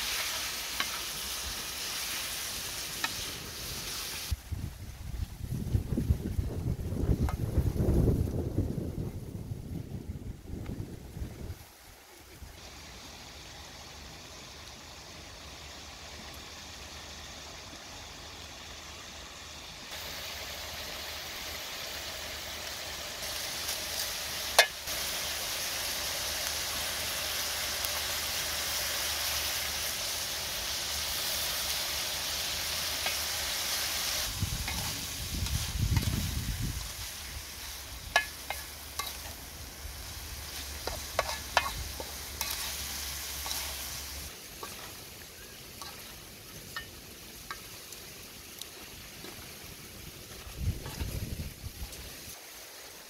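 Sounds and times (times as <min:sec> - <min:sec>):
food sizzling in a wok: 0:00.0 - 0:09.0, 0:11.2 - 0:53.0
wooden spoon stirring in pan: 0:34.6 - 0:39.5, 0:40.4 - 0:45.1.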